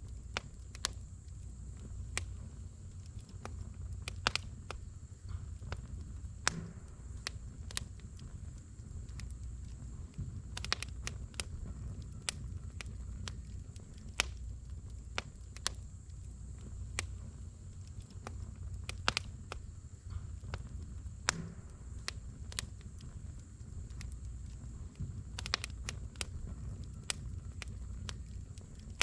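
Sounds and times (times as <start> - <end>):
firewood crackling and popping: 0.0 - 29.0
low steady fire rumble: 0.0 - 29.0.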